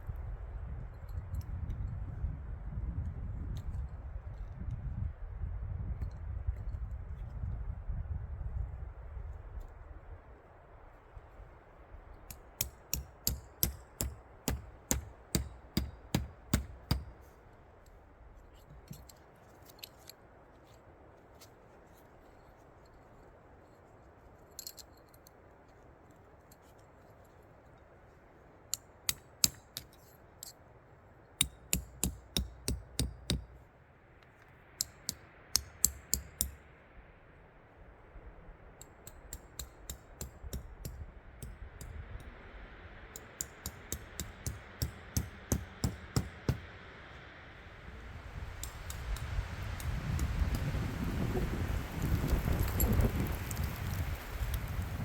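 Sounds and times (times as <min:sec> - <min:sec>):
sharp snipping clicks with thuds: 0:12.3 - 0:17.2, 0:31.4 - 0:33.6, 0:43.2 - 0:46.7.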